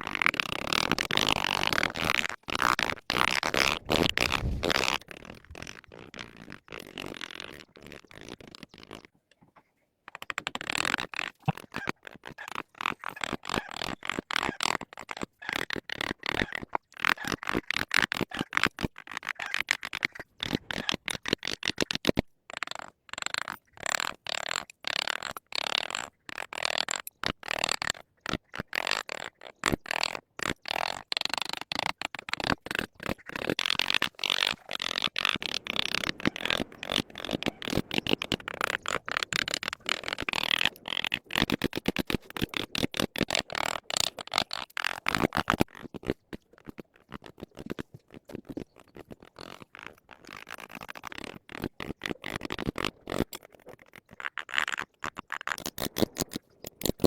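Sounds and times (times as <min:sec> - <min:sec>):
carving tool scraping wood: 0:00.0 - 0:09.1, 0:22.8 - 0:57.0.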